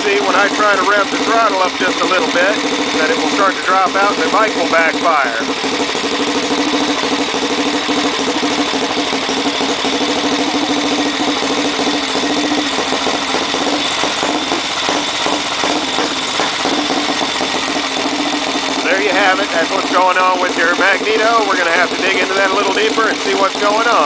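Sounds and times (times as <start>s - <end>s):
engine misfiring pops: 0.0s - 24.0s
motorcycle engine running: 0.0s - 24.0s.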